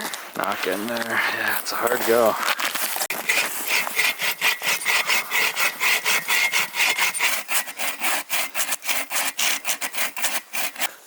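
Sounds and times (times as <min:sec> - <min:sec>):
hand saw cutting log: 0:03.1 - 0:10.9.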